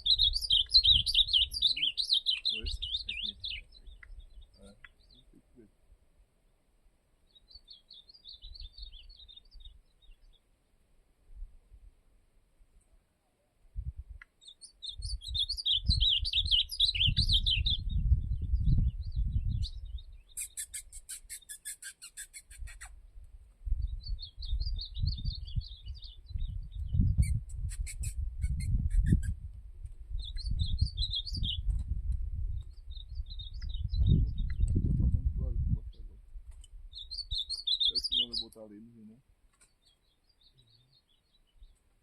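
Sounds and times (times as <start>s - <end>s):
bird singing warbled phrases: 0.0s - 5.7s, 7.3s - 10.5s, 14.4s - 22.9s, 23.7s - 29.4s, 30.1s - 31.7s, 32.5s - 36.2s, 36.9s - 41.8s
low rumble: 29.3s - 36.3s.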